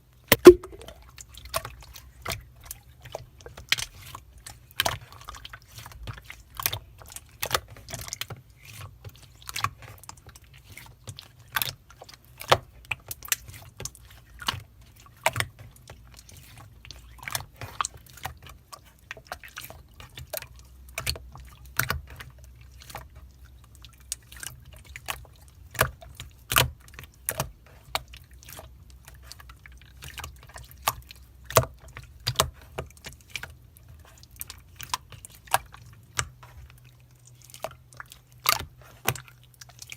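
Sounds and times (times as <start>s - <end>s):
slime squeezed wet clicks: 0.3s - 0.9s.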